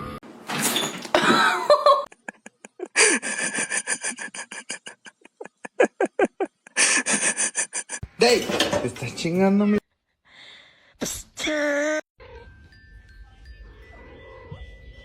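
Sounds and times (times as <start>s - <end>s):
person laughing: 1.2s - 8.0s.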